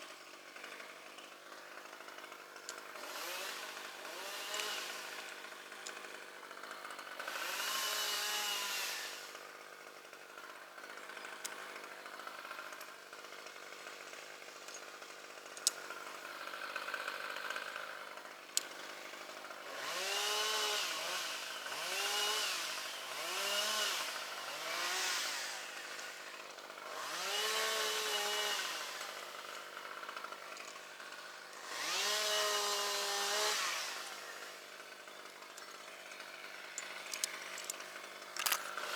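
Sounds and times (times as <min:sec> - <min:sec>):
chainsaw idling and revving: 0:00.0 - 0:38.9
sharp clicks: 0:36.8 - 0:37.8.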